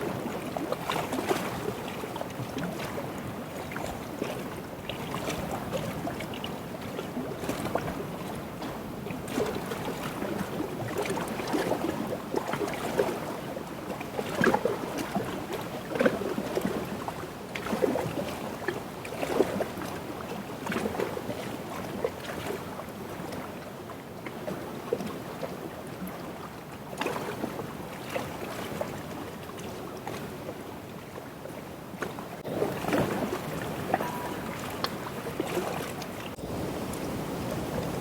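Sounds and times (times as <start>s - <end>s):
waves lapping against shore: 0.0s - 38.0s
wind on microphone: 32.4s - 38.0s.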